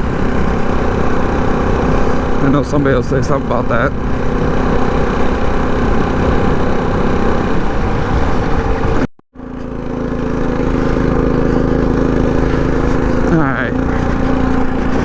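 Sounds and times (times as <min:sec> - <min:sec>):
wind noise on microphone: 0:00.0 - 0:09.1
minibike engine running: 0:00.0 - 0:15.0.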